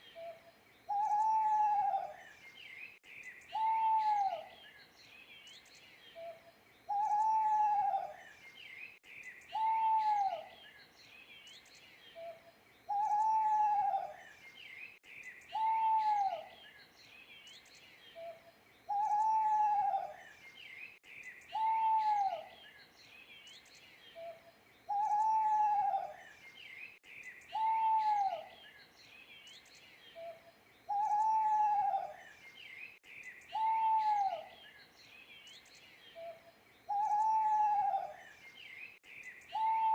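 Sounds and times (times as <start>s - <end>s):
small birds chirping: 0.0s - 39.9s
owl hooting: 0.2s - 2.2s, 3.5s - 4.5s, 6.9s - 8.2s, 9.5s - 10.5s, 12.2s - 14.2s, 15.5s - 16.5s, 18.2s - 20.2s, 21.5s - 22.5s, 24.2s - 26.2s, 27.5s - 28.5s, 30.2s - 32.2s, 33.5s - 34.6s, 36.2s - 38.2s, 39.5s - 39.9s.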